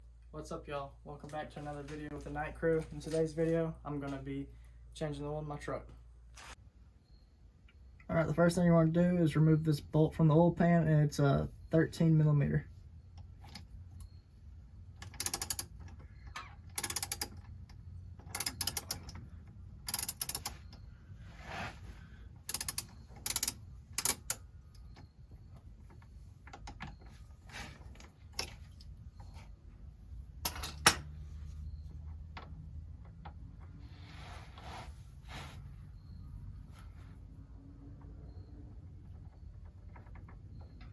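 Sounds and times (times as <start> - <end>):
socket ratchet clicking: 15.0 - 15.9, 16.7 - 17.4, 18.2 - 19.2, 19.9 - 20.6, 22.4 - 24.4.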